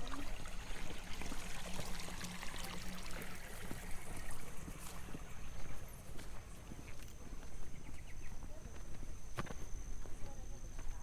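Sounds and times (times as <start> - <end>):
stream water trickling: 0.0 - 7.1.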